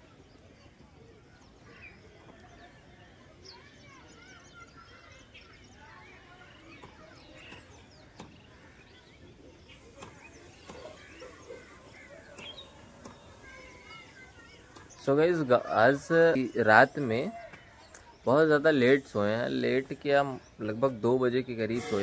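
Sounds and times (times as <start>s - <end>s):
birds chirping and calling: 0.0s - 22.0s
sharp clicks: 6.7s - 8.6s, 9.7s - 15.2s.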